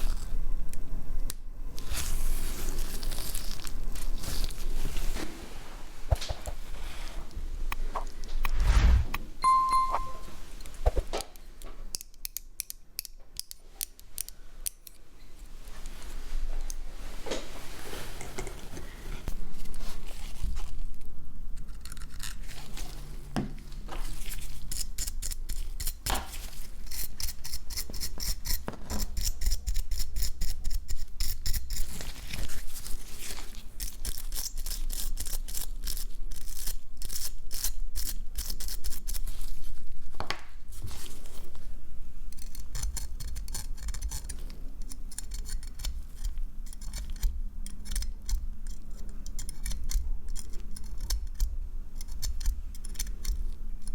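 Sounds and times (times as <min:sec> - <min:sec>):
low steady hum: 0:00.0 - 0:11.9.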